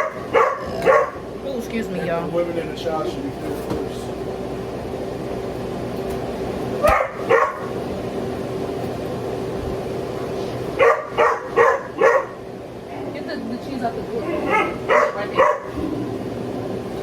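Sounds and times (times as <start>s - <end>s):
dog barking: 0.0s - 1.2s, 6.8s - 7.7s, 10.8s - 12.4s, 14.2s - 15.8s.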